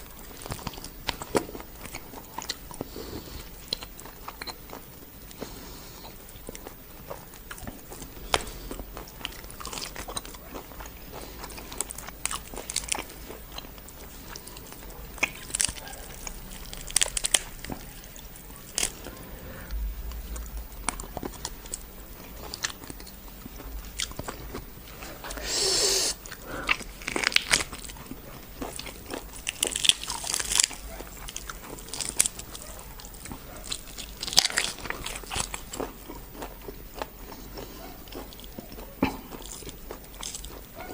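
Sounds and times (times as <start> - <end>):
chewing and biting: 0.0 - 40.9
longer noisy sound: 18.6 - 22.5.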